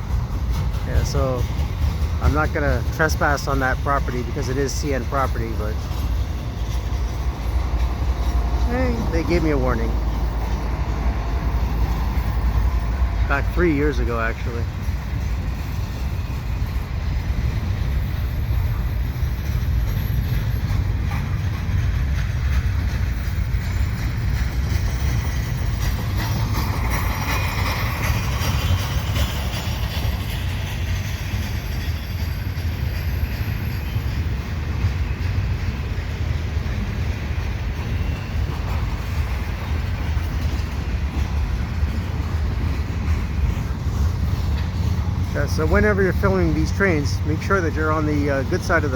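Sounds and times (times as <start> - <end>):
freight train wheels rumbling: 0.0 - 48.9
high-pitched rail noise: 0.0 - 48.9.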